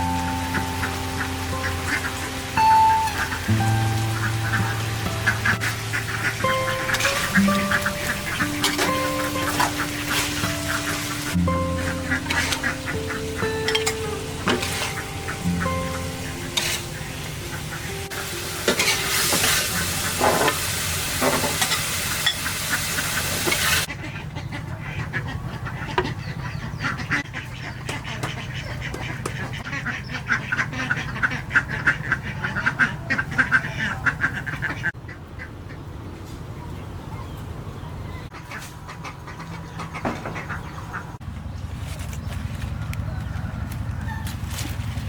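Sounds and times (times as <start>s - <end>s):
food sizzling in pan: 0.0s - 23.9s
utensil stirring and scraping pan: 8.1s - 15.3s, 16.2s - 17.1s, 18.7s - 22.5s.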